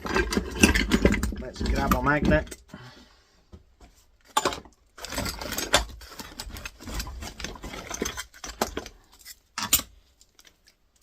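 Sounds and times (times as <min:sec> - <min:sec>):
metal scrap parts clinking: 0:00.0 - 0:02.6, 0:04.3 - 0:09.9.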